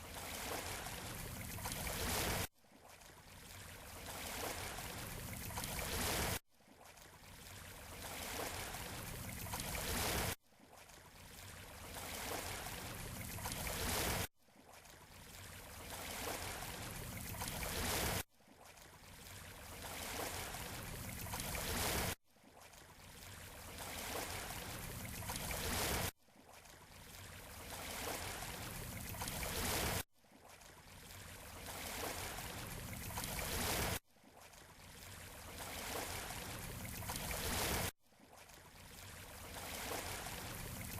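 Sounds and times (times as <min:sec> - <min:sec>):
waves washing on shore: 0:00.0 - 0:06.4, 0:07.0 - 0:14.3, 0:14.9 - 0:18.3, 0:19.0 - 0:22.2, 0:22.9 - 0:26.1, 0:26.8 - 0:30.0, 0:30.6 - 0:40.9.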